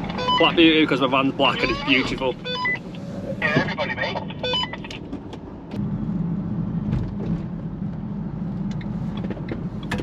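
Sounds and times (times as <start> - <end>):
engine and road drone: 0.0 - 10.0.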